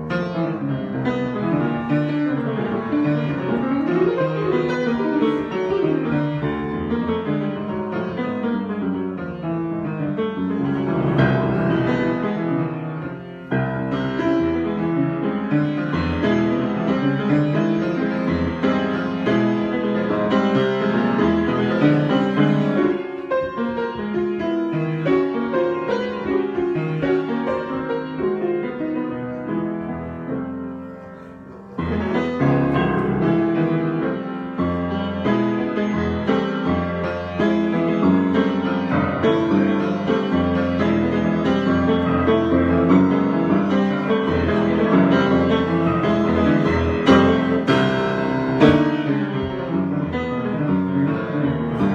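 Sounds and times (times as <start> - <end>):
piano playing ringing chords: 10.0 - 26.4.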